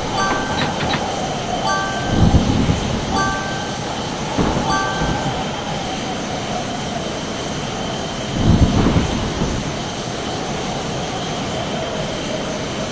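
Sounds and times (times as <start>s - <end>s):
brief chime: 0.1s - 5.9s.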